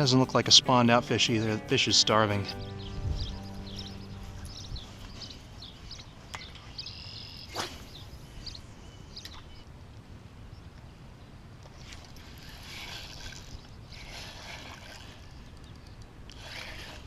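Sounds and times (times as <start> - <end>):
bird chirps: 1.4 - 9.7
wind rumble on microphone: 2.6 - 6.8
sharp swish: 7.5 - 8.0.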